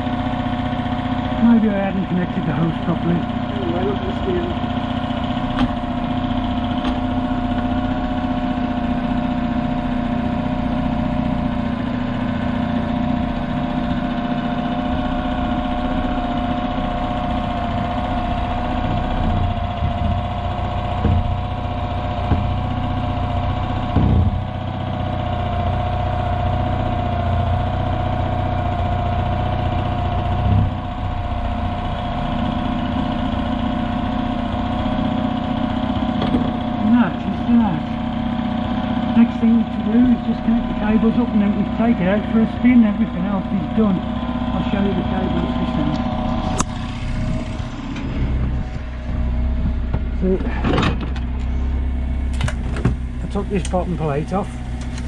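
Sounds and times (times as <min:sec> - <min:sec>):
outboard motor idling: 0:00.0 - 0:55.0
short dull knocks: 0:19.8 - 0:21.5, 0:22.2 - 0:22.6, 0:23.9 - 0:24.4.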